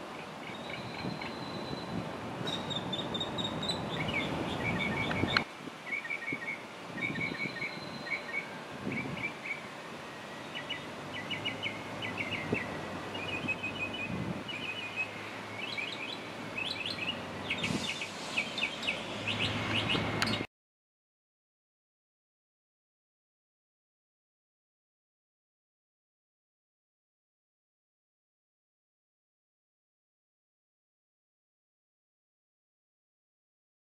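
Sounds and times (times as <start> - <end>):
outdoor background noise: 0.0 - 20.5
songbirds chirping: 0.0 - 20.5.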